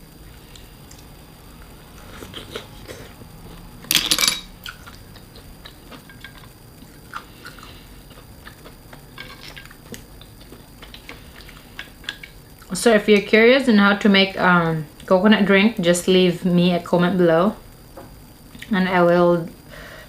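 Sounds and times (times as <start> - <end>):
chewing: 2.0 - 3.7, 4.6 - 12.8
dishes clattering: 3.9 - 4.5.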